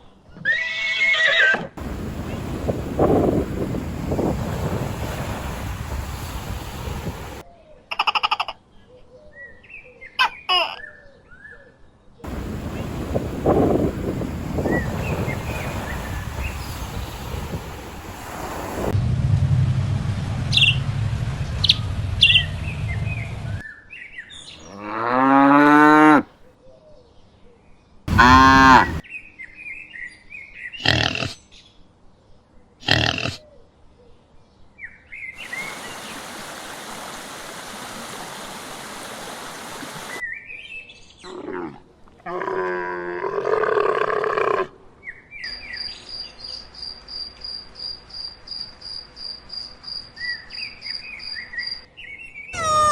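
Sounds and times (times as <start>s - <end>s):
crickets chirping: 1.8s - 7.4s, 12.3s - 19.0s, 28.1s - 29.0s, 46.6s - 50.3s
wind noise: 1.8s - 7.4s, 12.3s - 23.6s, 28.1s - 29.0s
farm animal calls: 28.1s - 29.0s, 30.8s - 31.4s, 32.8s - 33.4s, 52.6s - 52.9s
high chirps: 52.6s - 52.9s.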